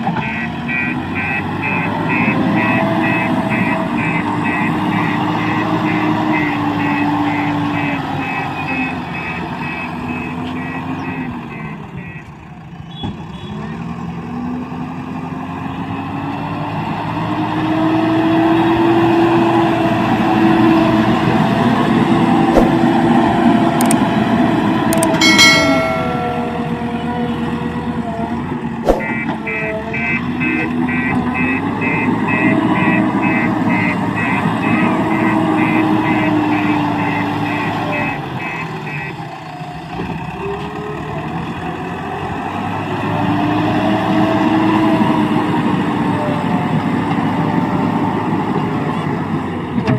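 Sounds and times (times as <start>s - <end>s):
diesel engine revving: 0.0s - 25.0s, 26.8s - 49.8s
brief high tone: 25.0s - 27.4s
reversing alarm beeping: 29.0s - 39.2s.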